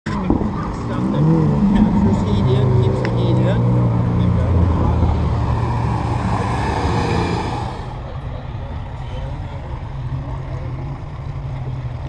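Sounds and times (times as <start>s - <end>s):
car driving past: 0.1s - 9.0s
truck diesel engine drone: 0.1s - 12.0s.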